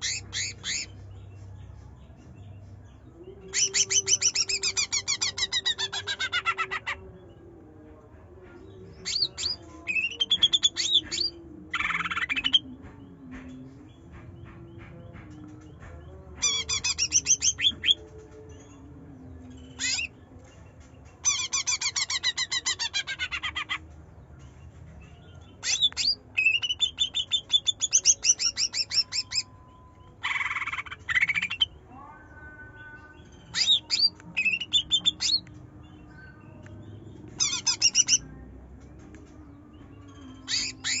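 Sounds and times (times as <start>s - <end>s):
bird chattering trills: 0.0s - 1.0s, 37.4s - 38.2s.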